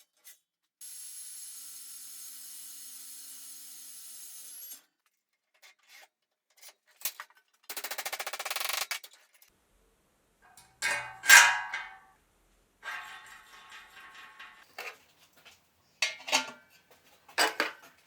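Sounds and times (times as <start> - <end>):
metal clanks: 10.5 - 12.1, 12.8 - 15.0.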